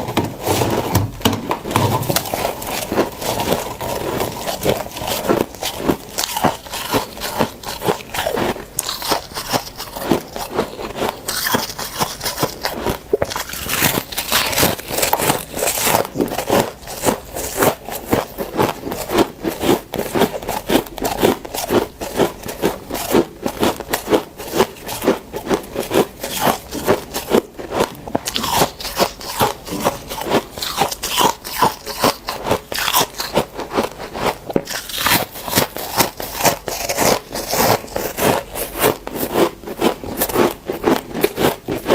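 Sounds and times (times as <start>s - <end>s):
frost being crunched by chewing: 2.0s - 41.9s.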